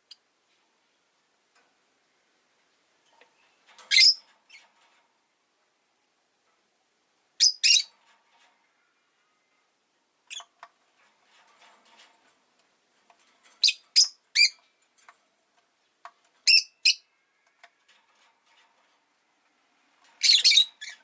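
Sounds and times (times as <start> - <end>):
lovebird shrill chirps: 20.2 - 21.0.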